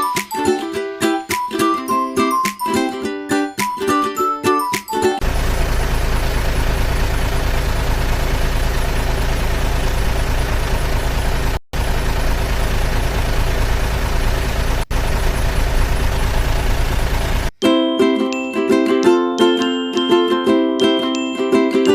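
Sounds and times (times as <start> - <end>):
heavy truck engine rumbling: 5.2 - 17.6.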